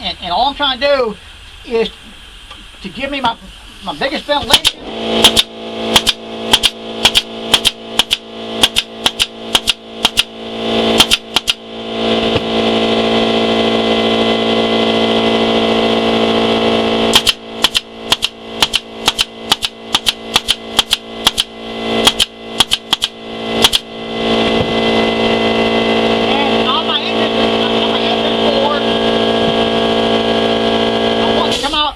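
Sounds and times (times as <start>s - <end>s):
steady machine hum: 0.0s - 31.9s
staple gun firing into wood: 4.5s - 10.3s, 11.0s - 11.6s, 17.1s - 23.9s.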